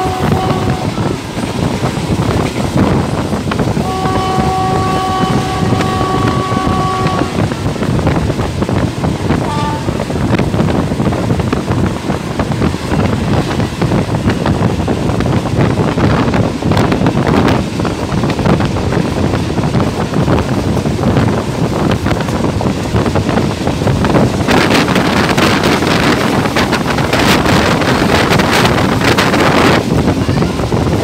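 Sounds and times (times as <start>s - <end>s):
train horn: 0.0s - 1.2s, 3.7s - 7.7s, 9.4s - 10.2s
train wheels rumbling on rails: 0.0s - 31.0s
wind rushing over microphone: 0.0s - 31.0s.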